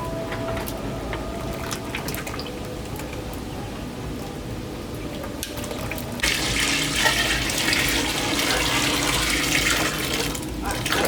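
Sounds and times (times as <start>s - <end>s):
water running: 5.7s - 11.0s.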